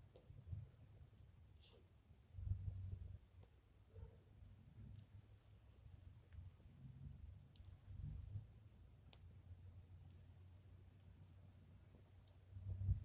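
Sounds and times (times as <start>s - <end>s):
wind rumble on microphone: 12.6s - 13.0s.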